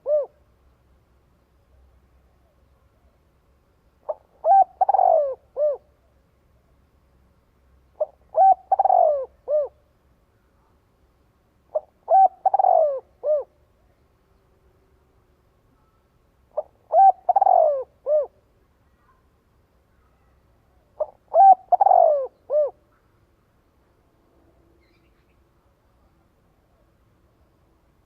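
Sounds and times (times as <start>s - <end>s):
dove cooing: 0.0s - 0.4s, 4.0s - 5.9s, 8.0s - 9.8s, 11.7s - 13.6s, 16.5s - 18.4s, 21.0s - 23.0s.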